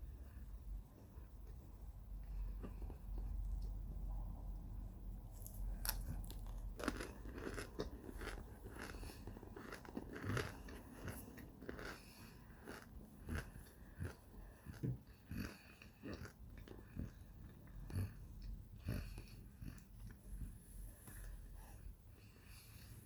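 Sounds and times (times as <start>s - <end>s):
crunchy chewing: 5.3s - 21.4s.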